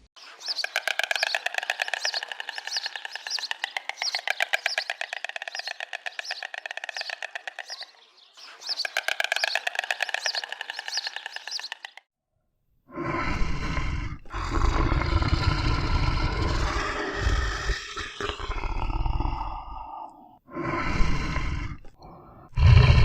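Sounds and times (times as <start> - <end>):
animal chirping trill: 0.2 - 12.0.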